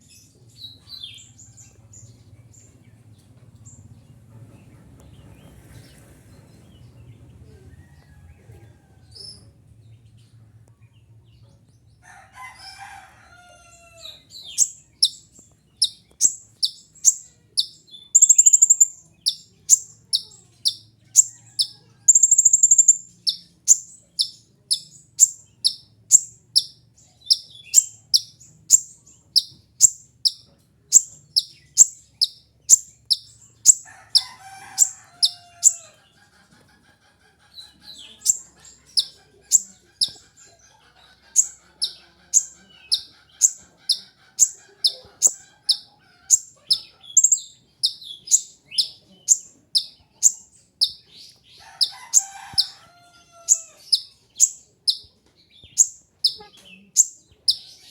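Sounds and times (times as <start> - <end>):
lower chattering bird call: 14.3 - 35.8, 37.9 - 52.8, 53.4 - 57.9.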